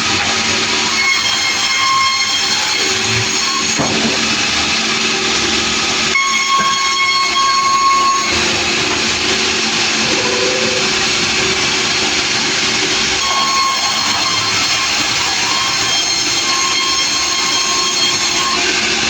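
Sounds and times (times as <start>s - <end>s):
sawmill machine noise: 0.0s - 19.0s
high saw whine: 5.1s - 19.0s.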